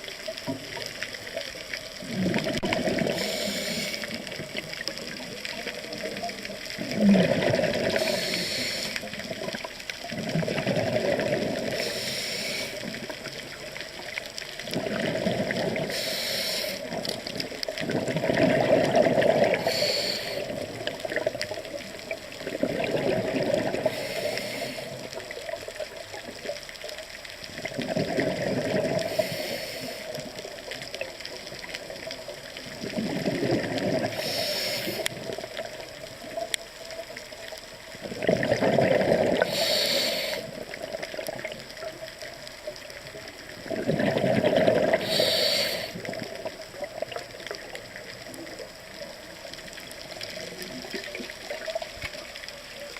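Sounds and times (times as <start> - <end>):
exhaled bubbles rushing: 2.0 - 12.0, 12.6 - 16.1, 16.8 - 26.6, 27.5 - 29.4, 30.2 - 36.4, 38.0 - 48.8, 50.0 - 52.5
diver breathing through regulator: 2.9 - 4.4, 6.9 - 9.2, 11.1 - 13.0, 15.1 - 17.0, 18.8 - 20.7, 23.7 - 25.1, 28.9 - 30.2, 33.9 - 35.2, 38.9 - 40.6, 44.4 - 46.1.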